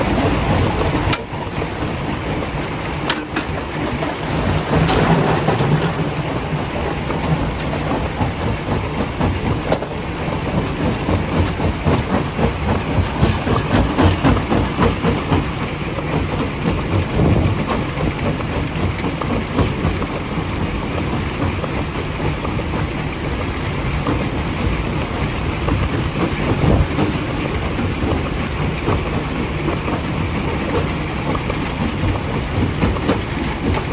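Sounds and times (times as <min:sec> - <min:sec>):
rock crusher rumbling: 0:00.0 - 0:21.2.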